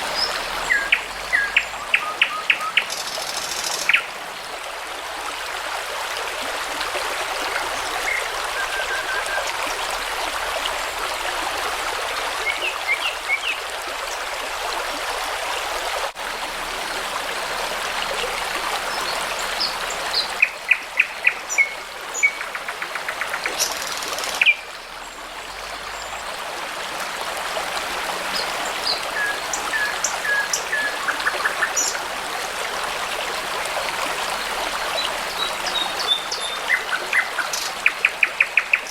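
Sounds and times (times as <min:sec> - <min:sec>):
songbirds singing: 0:00.0 - 0:04.2, 0:18.9 - 0:24.6, 0:28.4 - 0:32.0, 0:35.0 - 0:38.9
babbling brook: 0:00.0 - 0:38.9.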